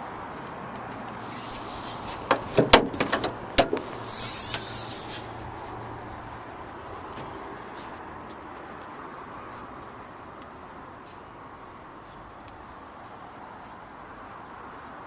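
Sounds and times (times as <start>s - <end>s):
short hiss: 1.2s - 2.4s, 3.8s - 5.6s
metallic clicks and knocks: 2.2s - 3.9s.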